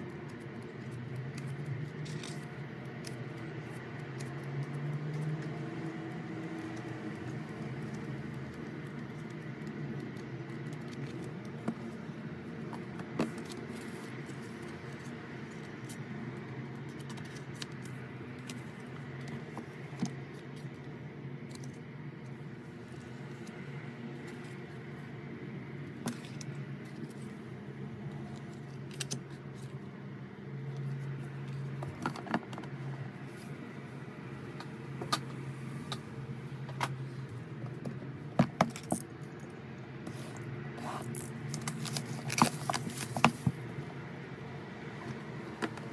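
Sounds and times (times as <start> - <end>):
steady low hum: 0.0 - 45.9
packaging rustling: 41.0 - 43.6.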